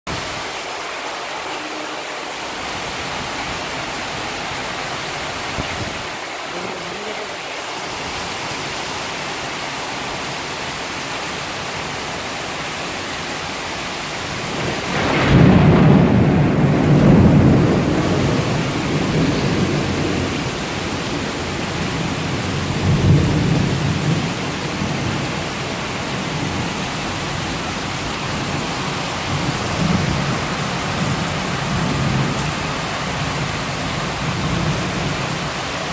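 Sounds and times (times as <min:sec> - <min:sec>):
heavy rain falling: 0:00.1 - 0:35.9
low rumble of thunder: 0:14.4 - 0:35.9.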